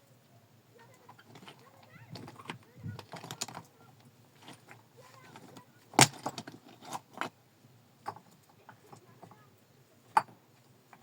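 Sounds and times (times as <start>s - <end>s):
hard objects knocking together: 4.4s - 7.4s.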